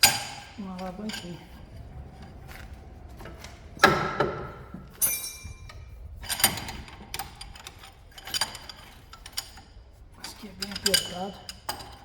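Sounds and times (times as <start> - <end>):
steel tools clanking on metal: 4.4 - 5.8, 10.2 - 12.0
ringing metallic clink: 5.0 - 5.8.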